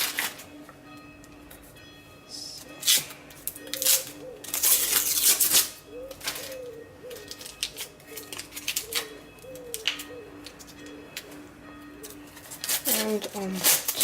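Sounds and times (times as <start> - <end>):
clicks and scrapes of hands working: 2.6 - 11.3, 12.0 - 14.0.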